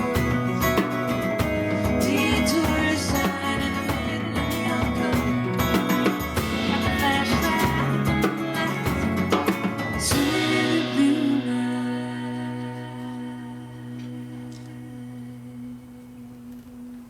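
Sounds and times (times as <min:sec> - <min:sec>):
drum kit steady beat: 0:00.0 - 0:12.6
live band playing: 0:00.0 - 0:12.8
guitar: 0:00.0 - 0:17.0.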